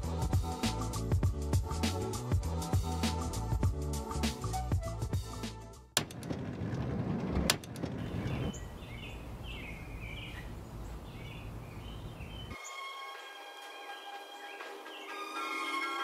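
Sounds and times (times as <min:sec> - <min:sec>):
birds chirping: 0:07.5 - 0:15.6.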